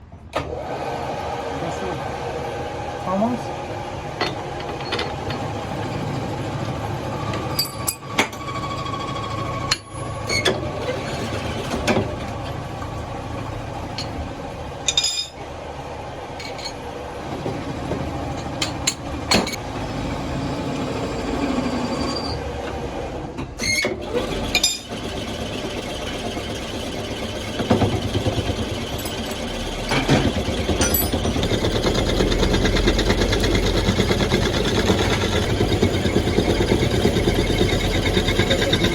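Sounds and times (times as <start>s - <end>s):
machinery running: 1.4s - 23.2s, 24.0s - 38.9s
metal clinks and knocks: 4.2s - 6.0s, 14.8s - 15.4s, 16.4s - 16.8s, 30.8s - 31.4s.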